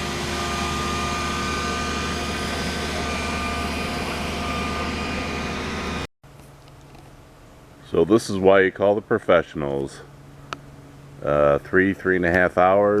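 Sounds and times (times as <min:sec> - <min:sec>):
faint high whines: 0:00.0 - 0:06.1
machinery engine running: 0:00.0 - 0:06.1.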